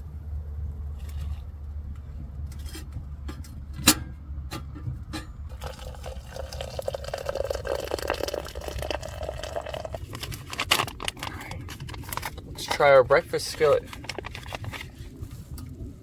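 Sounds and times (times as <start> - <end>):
liquid pouring into container: 5.5 - 12.7.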